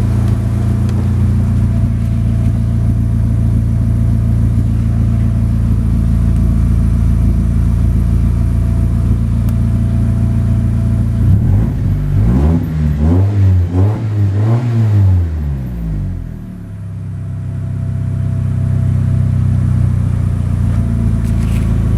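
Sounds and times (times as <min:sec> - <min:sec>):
car engine idling: 0:00.0 - 0:21.9
engine revving: 0:11.1 - 0:16.6.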